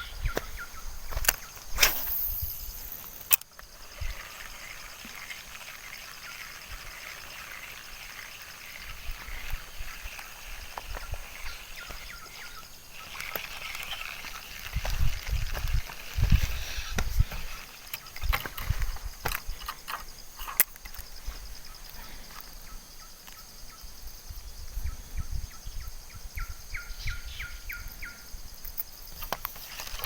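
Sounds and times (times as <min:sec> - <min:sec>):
small animals calling: 0:00.0 - 0:18.2
wind rumble on microphone: 0:14.6 - 0:17.6, 0:24.0 - 0:28.6.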